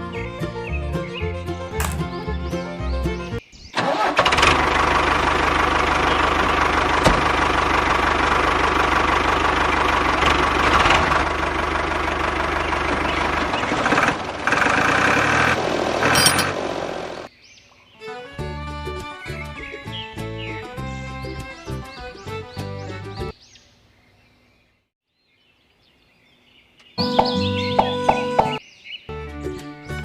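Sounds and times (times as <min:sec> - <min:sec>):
motor humming: 0:04.2 - 0:17.3.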